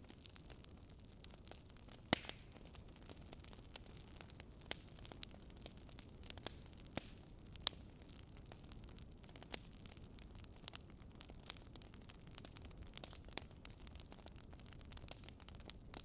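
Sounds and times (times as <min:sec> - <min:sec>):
fire crackling: 0:00.0 - 0:16.0
low steady hiss: 0:00.0 - 0:16.0
sharp pops and snaps: 0:02.0 - 0:02.6, 0:06.4 - 0:07.8.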